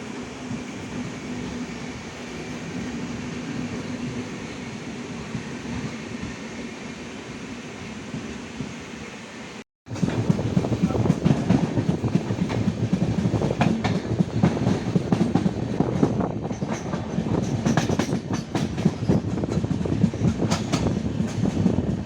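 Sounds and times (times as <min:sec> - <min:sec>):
train low rumble: 0:00.0 - 0:22.0
wheels clattering over rail joints: 0:09.9 - 0:22.0.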